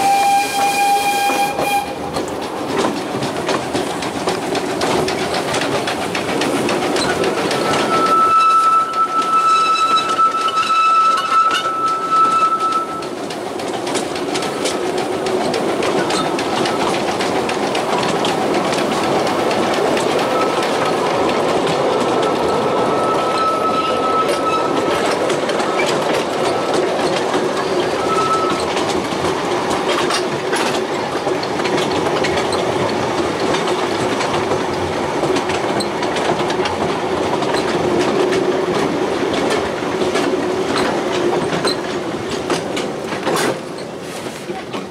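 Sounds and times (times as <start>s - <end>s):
train wheels clacking over rails: 0.0s - 44.9s
high wheel squeal: 7.5s - 13.1s, 22.2s - 26.0s, 27.6s - 28.7s.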